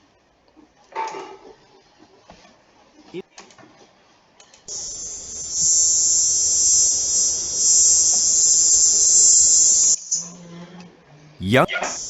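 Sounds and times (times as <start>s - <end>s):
cicada buzzing: 4.9s - 10.0s.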